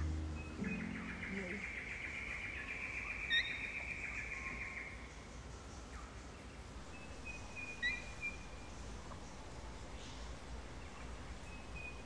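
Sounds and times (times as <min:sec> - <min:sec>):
rapid bird trill: 0:00.0 - 0:05.0, 0:06.9 - 0:09.4
sharp bird chirp: 0:00.3 - 0:05.0.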